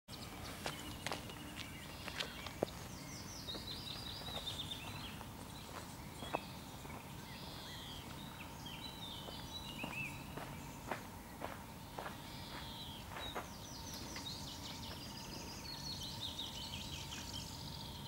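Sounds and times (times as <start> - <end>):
birds singing: 0.1 - 18.0.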